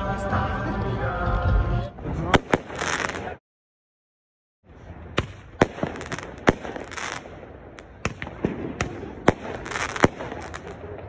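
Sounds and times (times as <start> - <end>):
firecrackers banging: 2.4 - 3.4, 5.2 - 11.0.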